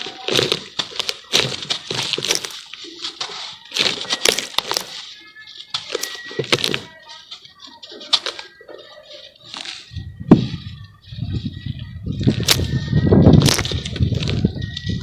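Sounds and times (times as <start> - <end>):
charcoal crackling in water: 0.0 - 5.0.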